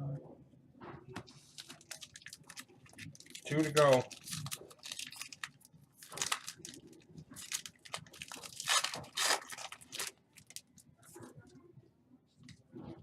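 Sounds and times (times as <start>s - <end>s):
wrapper being torn and crinkled: 1.4s - 10.8s.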